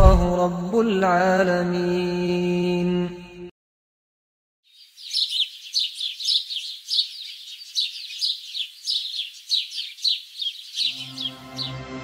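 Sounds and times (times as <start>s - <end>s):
birds chirping: 4.7s - 12.0s
soft music: 10.8s - 12.0s.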